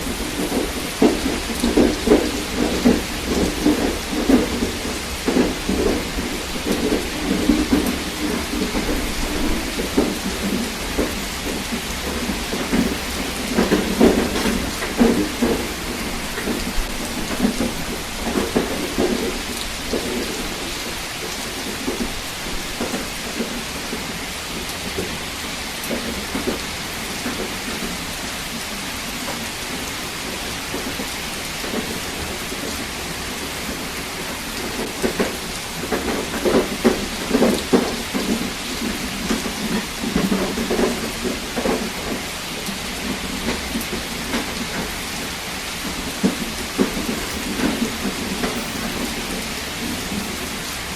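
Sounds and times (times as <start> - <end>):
heavy rain hissing: 0.0 - 25.9, 37.2 - 50.9.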